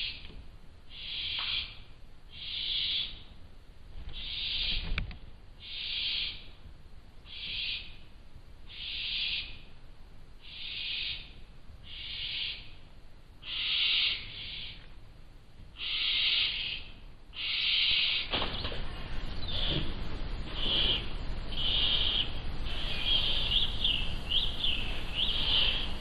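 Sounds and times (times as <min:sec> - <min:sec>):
owl chicks hissing calls: 0:00.9 - 0:03.2, 0:04.1 - 0:04.9, 0:05.6 - 0:06.6, 0:07.3 - 0:08.0, 0:08.7 - 0:09.7, 0:10.4 - 0:12.8, 0:13.4 - 0:14.8, 0:15.8 - 0:18.3, 0:19.3 - 0:26.0.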